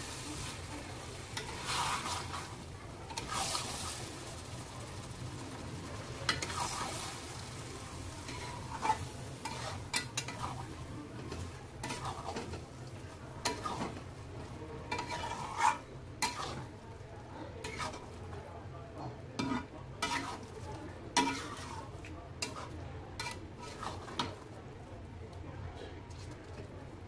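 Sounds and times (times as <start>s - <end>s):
chicken sizzling in hot oil: 0.0s - 18.4s, 19.3s - 24.5s
metal spatula scraping pan: 0.4s - 4.6s, 6.3s - 7.4s, 8.2s - 12.6s, 13.4s - 14.1s, 14.9s - 16.7s, 17.6s - 18.2s, 19.0s - 24.4s.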